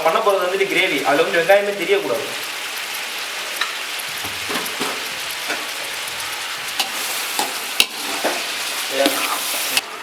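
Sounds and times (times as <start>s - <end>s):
onions sizzling in a pan: 0.0s - 10.0s
ladle clacking against a pan: 3.6s - 9.4s.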